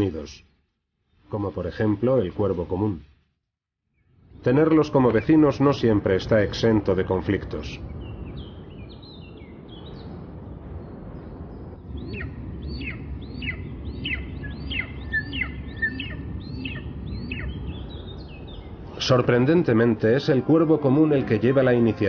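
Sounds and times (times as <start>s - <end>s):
steady low rumble: 4.0s - 21.5s
bird calling with descending calls: 12.0s - 18.8s.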